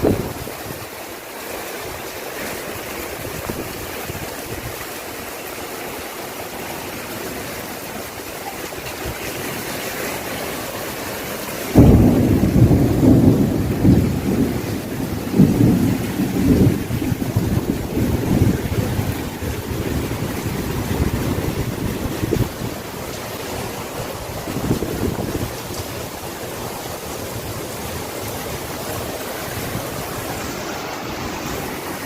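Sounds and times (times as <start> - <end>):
rain hissing: 0.0 - 32.0.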